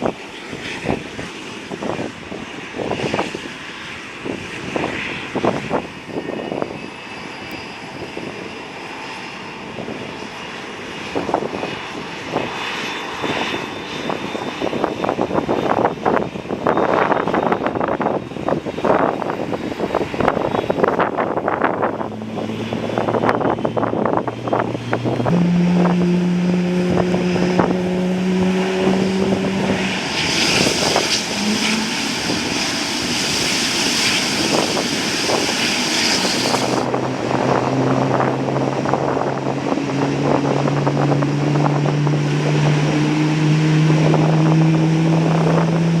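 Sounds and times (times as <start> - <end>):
tow tractor engine hum: 20.7 - 46.0.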